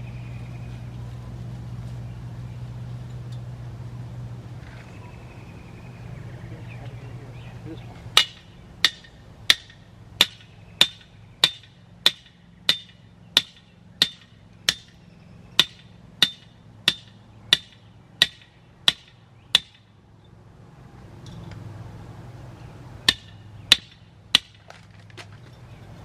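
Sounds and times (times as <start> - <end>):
hammer driving a nail: 8.2 - 15.0, 15.6 - 19.8.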